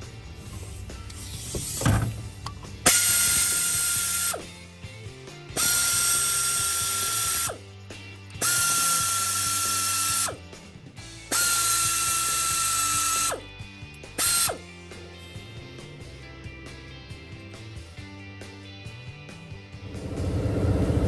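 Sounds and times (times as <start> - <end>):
power ratchet whining: 0.4 - 4.8, 5.5 - 7.7, 8.3 - 14.8.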